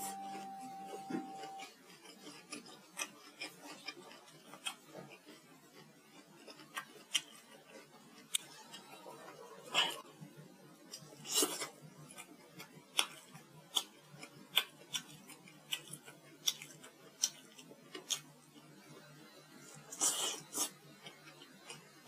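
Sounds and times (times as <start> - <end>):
chewing with wet mouth smacks: 1.4 - 9.0, 10.9 - 18.7.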